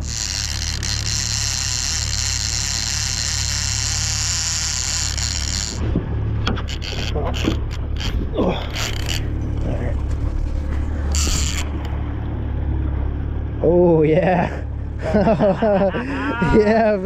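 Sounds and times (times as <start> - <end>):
fishing reel clicks: 0.0 - 9.3, 11.1 - 12.0
fishing reel buzzing: 0.0 - 9.8, 10.5 - 12.1
outboard motor humming: 0.0 - 17.0.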